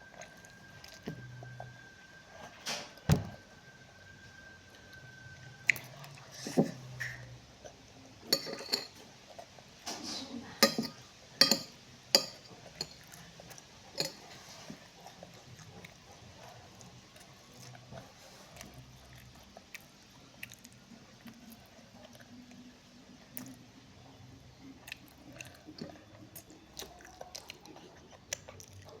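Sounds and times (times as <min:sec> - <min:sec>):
cutlery and dishes clinking: 0:08.3 - 0:09.1, 0:09.8 - 0:13.1, 0:13.9 - 0:14.8.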